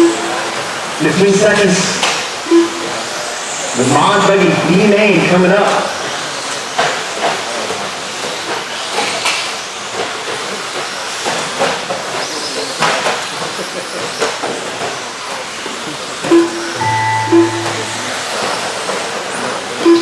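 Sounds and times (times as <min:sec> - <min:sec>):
short steady tone: 0:16.3 - 0:18.9.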